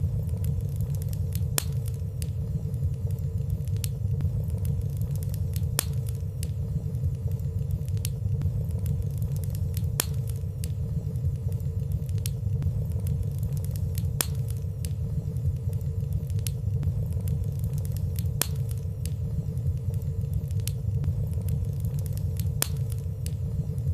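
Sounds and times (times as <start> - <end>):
fire crackling in fireplace: 0.0 - 23.9.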